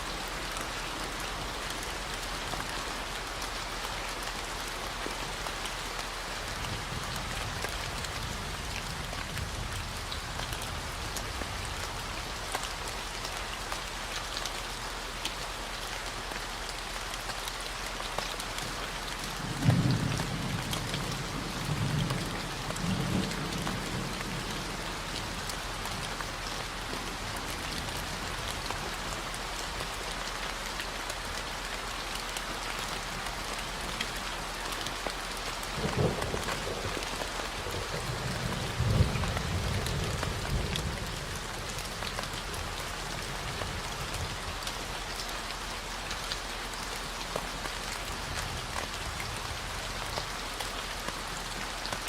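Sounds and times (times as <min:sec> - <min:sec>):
steady rain hiss: 0:00.0 - 0:52.0
thunder rumbling: 0:35.8 - 0:43.6.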